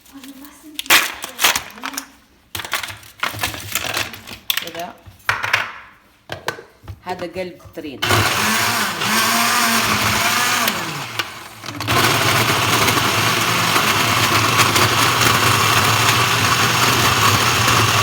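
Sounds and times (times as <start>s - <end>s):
blender motor running: 8.0s - 18.0s.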